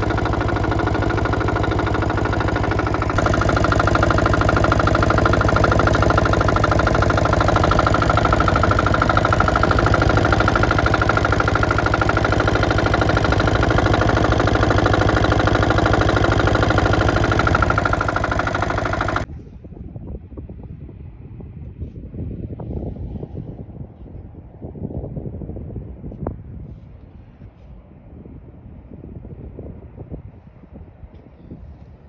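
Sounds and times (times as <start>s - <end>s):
excavator diesel engine idling: 0.0s - 19.3s.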